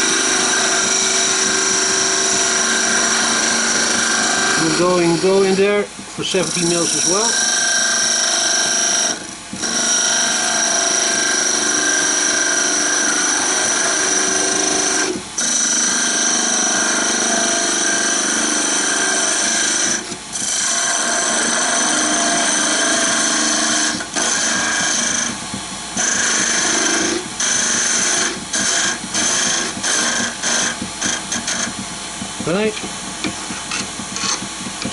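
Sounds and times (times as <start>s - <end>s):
wood lathe cutting with whine: 0.0s - 32.7s.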